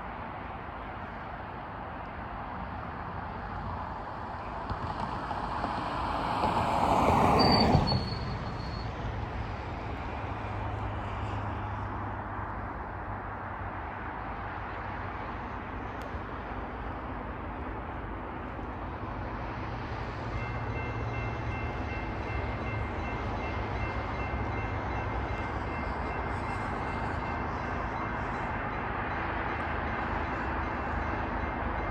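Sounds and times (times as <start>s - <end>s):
diesel locomotive passing: 0.0s - 31.9s
high-pitched wheel squeal: 7.0s - 9.0s.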